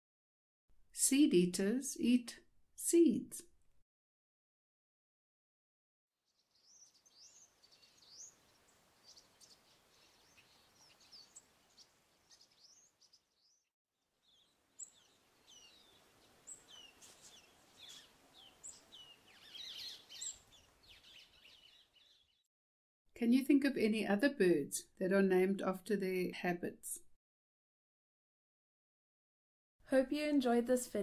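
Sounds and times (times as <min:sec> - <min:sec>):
faint bird chirps and twitters: 0:06.3 - 0:22.5
outdoor background noise: 0:06.4 - 0:22.1.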